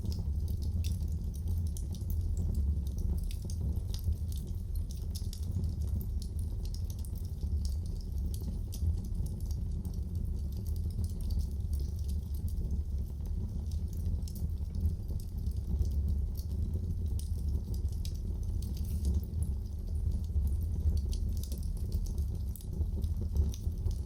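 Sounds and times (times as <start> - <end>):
fire crackles and pops: 0.0 - 24.0
wood fire rumbling: 0.0 - 24.0.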